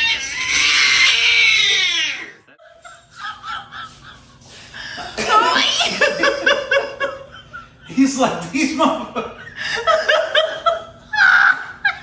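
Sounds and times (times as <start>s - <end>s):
dog screaming wail: 0.0s - 2.5s
dog whimpering: 0.0s - 2.5s.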